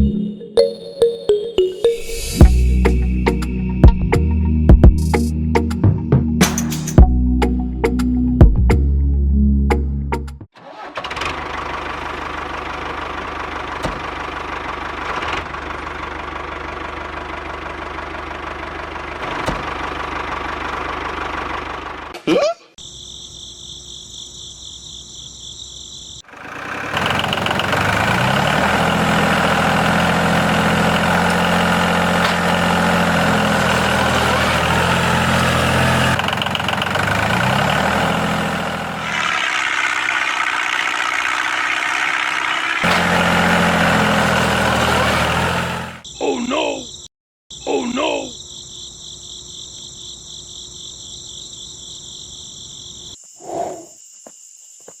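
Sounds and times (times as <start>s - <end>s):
small motor running: 39.0s - 42.9s
rising squeal: 39.0s - 45.9s.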